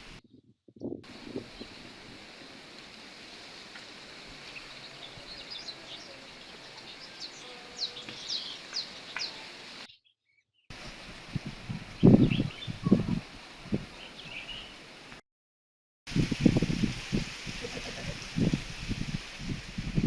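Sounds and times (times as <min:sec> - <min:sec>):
wind gusts buffeting microphone: 0:00.0 - 0:09.4, 0:10.7 - 0:14.6, 0:16.1 - 0:20.0
wind hissing: 0:01.0 - 0:09.9, 0:10.7 - 0:15.1, 0:16.1 - 0:20.0
small birds chirping: 0:03.7 - 0:11.0, 0:12.0 - 0:13.2, 0:13.9 - 0:14.8.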